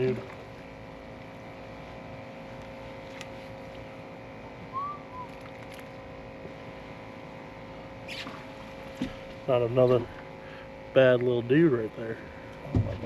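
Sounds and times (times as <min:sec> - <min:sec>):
boat motor humming: 0:00.0 - 0:13.0
whistled call: 0:04.6 - 0:05.5.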